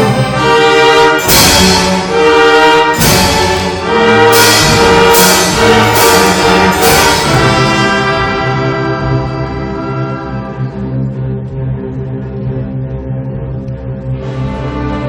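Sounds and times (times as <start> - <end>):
sharp accented orchestral hits: 0.0 - 10.8
orchestra playing brass chords: 0.0 - 11.1, 14.1 - 15.0.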